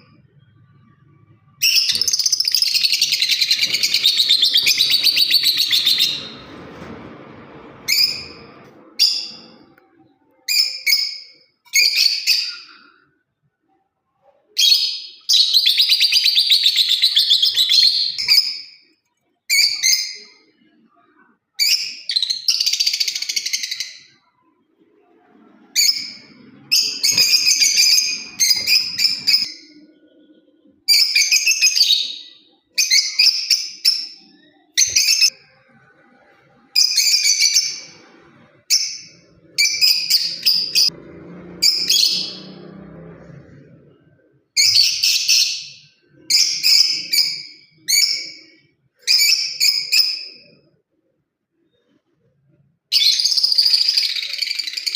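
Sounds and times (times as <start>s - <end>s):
lovebird chirping: 0.0s - 6.6s, 14.6s - 18.9s, 25.1s - 35.8s, 36.7s - 41.0s, 44.6s - 50.6s.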